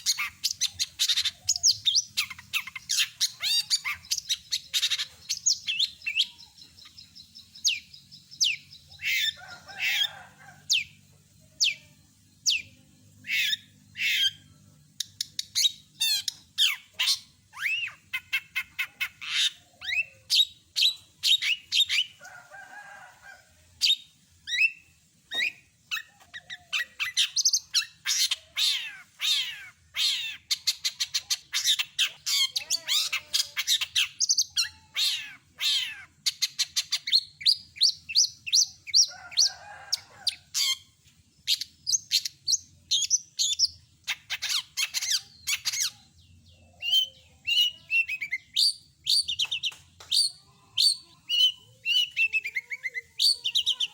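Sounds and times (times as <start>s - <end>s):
bird song with chirps and trills: 0.0s - 53.9s
harsh raspy bird call: 8.9s - 10.6s, 25.9s - 37.0s.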